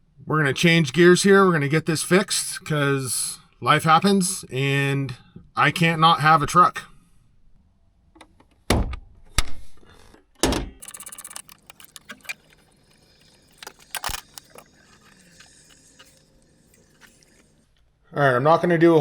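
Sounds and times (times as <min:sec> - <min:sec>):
faint clatter of tools: 0:09.9 - 0:16.2
rapid clicking: 0:10.8 - 0:16.2.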